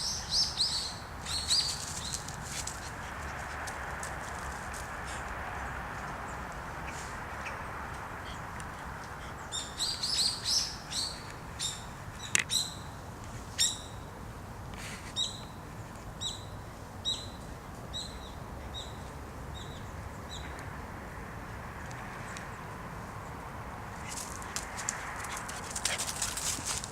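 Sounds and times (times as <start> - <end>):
bird chirping: 9.4 - 12.9.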